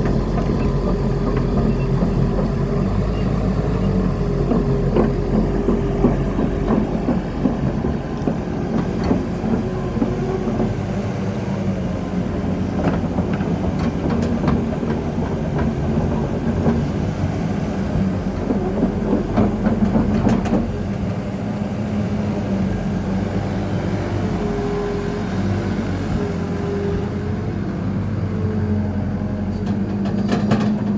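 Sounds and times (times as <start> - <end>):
excavator diesel engine running: 0.0 - 30.9
metallic clanks and knocks: 29.6 - 30.9.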